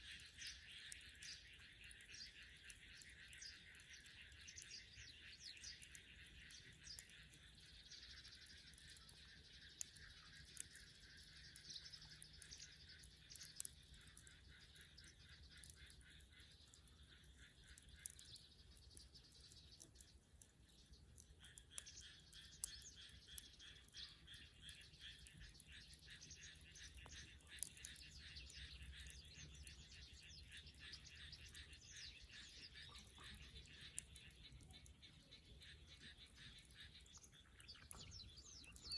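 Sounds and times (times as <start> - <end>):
birds chirping: 0.0 - 38.9
wood fire crackling: 0.0 - 38.9
sharp crackling pops: 20.7 - 31.7.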